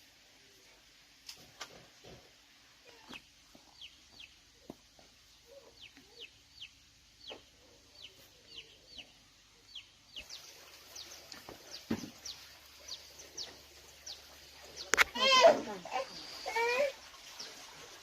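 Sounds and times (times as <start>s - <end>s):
chicks peeping: 2.9s - 4.4s, 5.5s - 15.4s.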